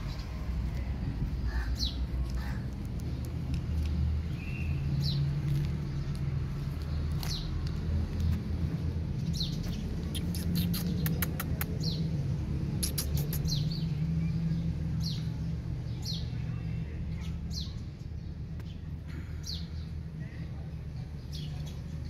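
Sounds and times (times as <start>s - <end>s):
steady low rumble: 0.0s - 12.8s
small birds chirping: 0.0s - 22.0s.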